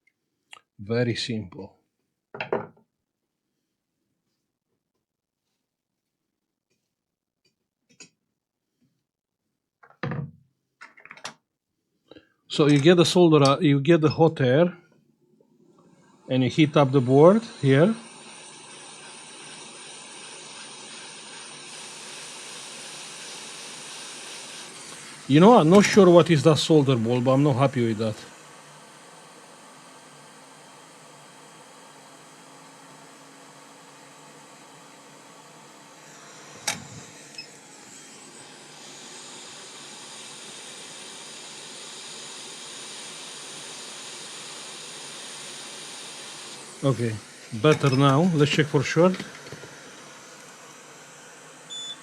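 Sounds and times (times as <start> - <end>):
hot air blower hissing: 15.8 - 52.0.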